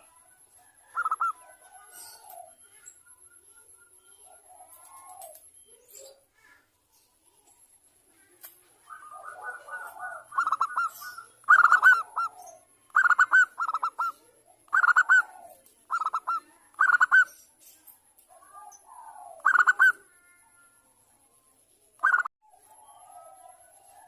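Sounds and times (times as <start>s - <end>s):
dove cooing: 0.0s - 2.8s, 4.1s - 5.5s, 8.7s - 17.3s, 18.3s - 20.1s, 22.0s - 24.0s
soft bird chatter: 0.0s - 24.0s.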